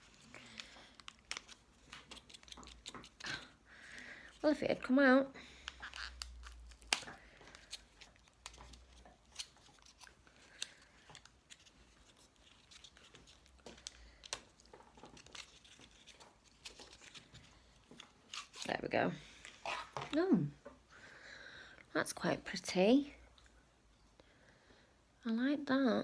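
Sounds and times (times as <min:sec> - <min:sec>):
lipstick packaging clicks and rustles: 0:00.0 - 0:03.6, 0:05.6 - 0:18.8.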